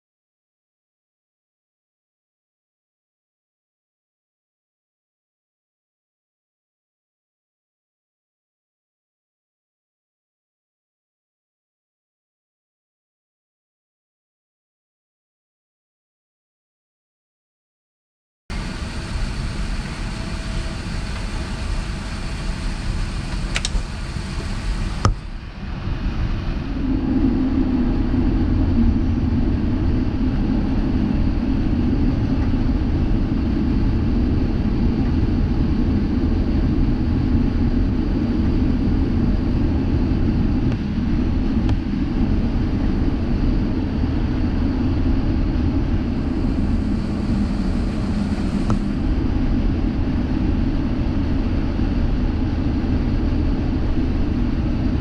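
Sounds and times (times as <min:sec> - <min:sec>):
jet engine and airflow rumble: 0:18.5 - 0:55.0
click: 0:23.3 - 0:23.9, 0:25.0 - 0:25.2, 0:48.6 - 0:48.9.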